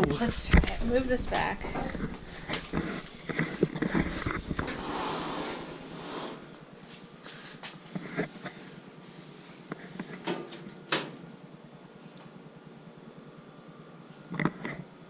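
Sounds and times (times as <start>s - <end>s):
rustling: 1.5s - 7.4s.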